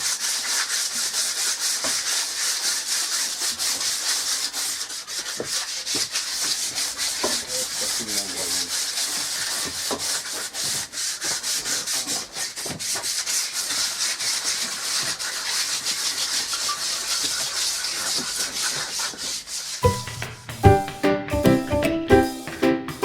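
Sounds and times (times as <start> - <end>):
sandpaper rubbing on wood: 0.0 - 20.6
music: 19.8 - 23.0.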